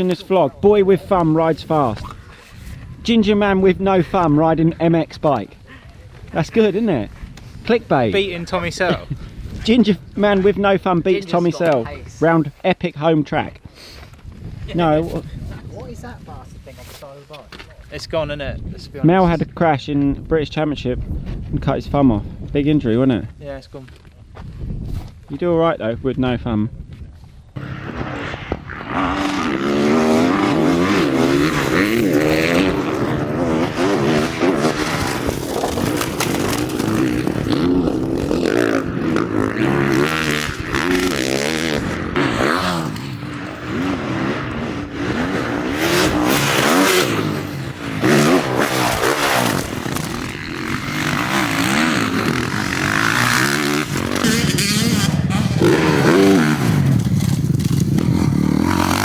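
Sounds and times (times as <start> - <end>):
motocross bike engines revving: 27.6 - 59.0.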